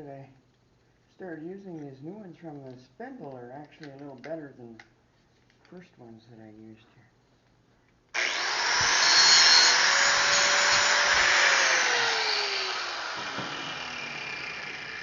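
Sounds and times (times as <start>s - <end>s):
angle grinder cutting steel: 8.2s - 15.0s.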